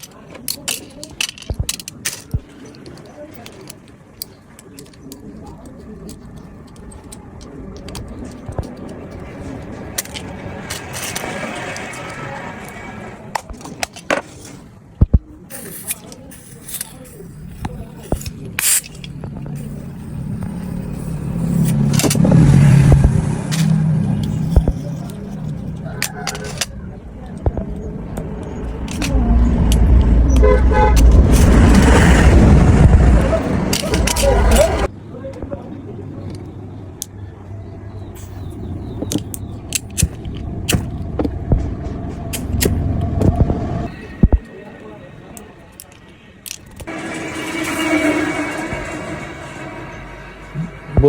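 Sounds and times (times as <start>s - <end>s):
road traffic rumble: 1.9s - 15.0s, 15.6s - 51.0s
engine hum: 5.2s - 13.6s, 17.2s - 34.9s, 36.0s - 45.5s, 46.7s - 51.0s.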